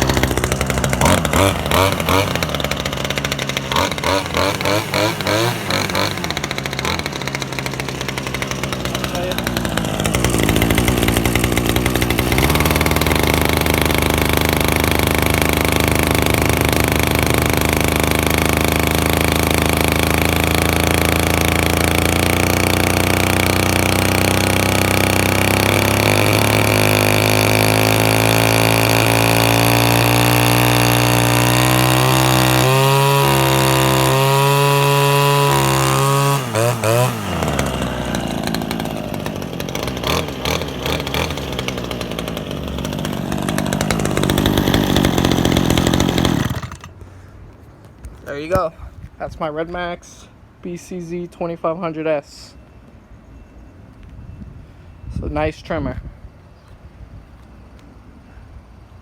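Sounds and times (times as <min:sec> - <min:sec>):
string trimmer engine running: 0:00.0 - 0:47.1.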